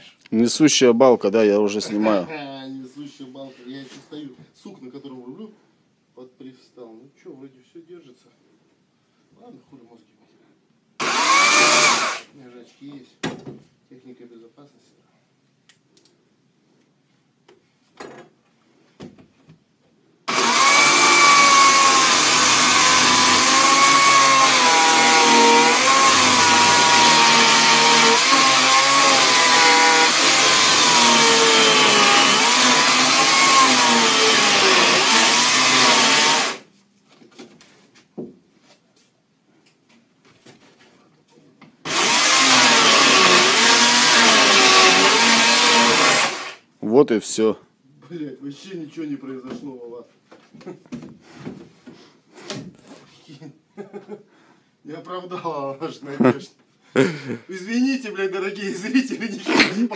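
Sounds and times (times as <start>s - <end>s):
power tool cutting: 11.0s - 12.3s, 20.3s - 36.6s, 41.9s - 46.6s.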